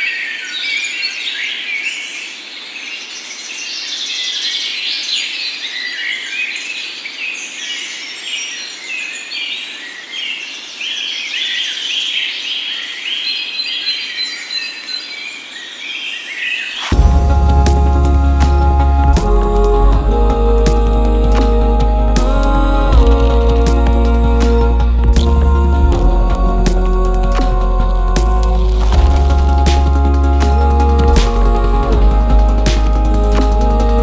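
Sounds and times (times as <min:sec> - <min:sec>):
songbirds chirping and trilling: 0:00.0 - 0:17.4.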